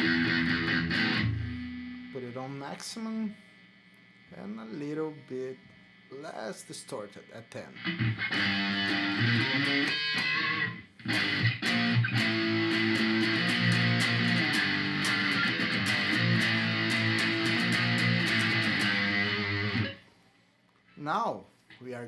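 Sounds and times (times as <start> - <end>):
distorted electric guitar chords: 0.0 - 2.2, 7.7 - 20.0.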